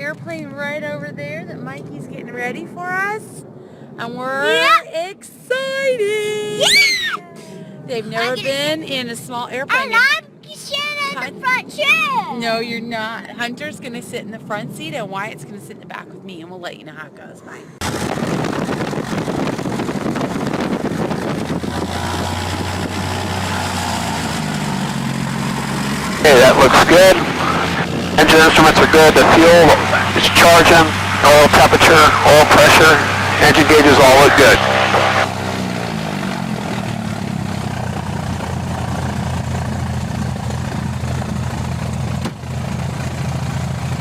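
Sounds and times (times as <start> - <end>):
propeller plane engine running: 0.0 - 4.8, 17.7 - 44.0.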